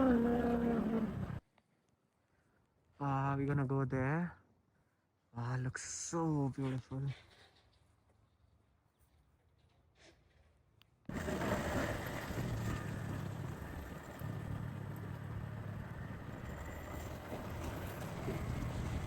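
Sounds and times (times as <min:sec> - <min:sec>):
motorbike engine running: 0:00.0 - 0:01.4, 0:11.1 - 0:19.0.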